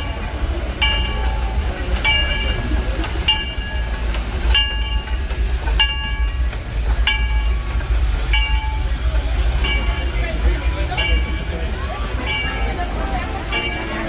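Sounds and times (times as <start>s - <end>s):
locomotive bell ringing: 0.0s - 14.0s
low rumble of train: 0.0s - 14.0s.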